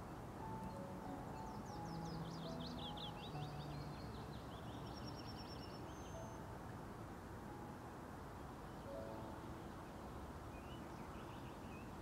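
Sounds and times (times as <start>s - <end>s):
songbird singing falling notes: 0.0s - 6.5s
soft background music: 0.0s - 12.0s
high bird trill: 0.5s - 6.5s.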